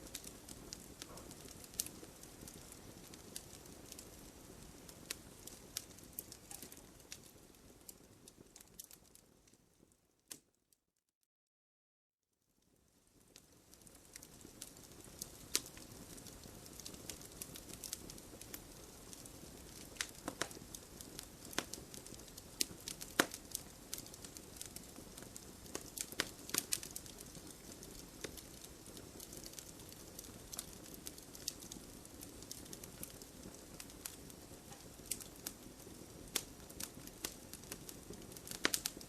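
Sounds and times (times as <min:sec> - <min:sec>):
campfire crackling and popping: 0:00.0 - 0:09.6, 0:12.7 - 0:39.0
flame rushing: 0:14.2 - 0:39.0.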